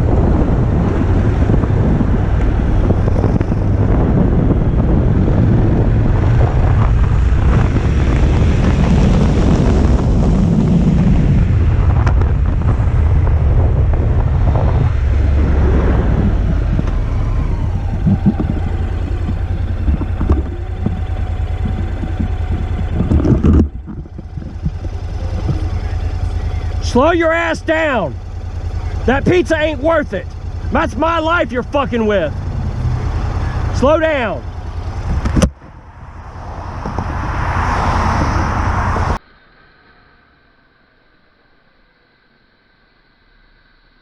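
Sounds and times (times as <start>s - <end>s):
motorcycle engine: 0.0s - 39.2s
wind buffeting microphone: 0.0s - 39.2s.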